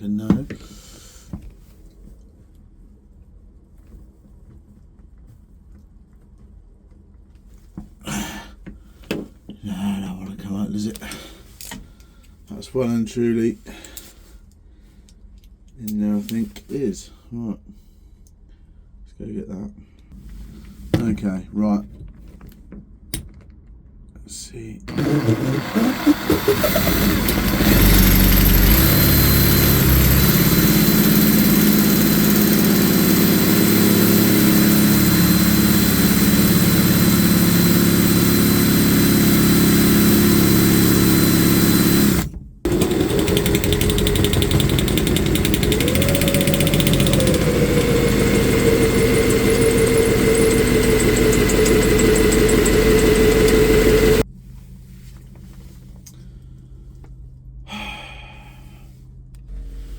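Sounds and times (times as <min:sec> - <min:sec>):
motor whining: 0:24.9 - 0:54.2.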